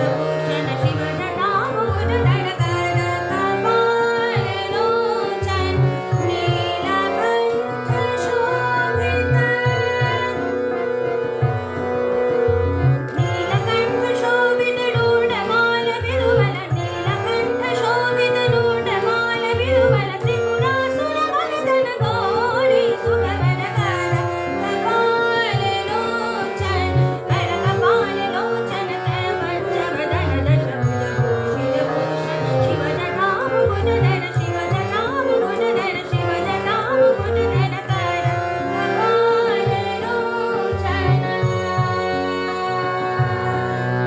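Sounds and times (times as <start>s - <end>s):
person singing ornamented melody: 13.1s - 43.9s.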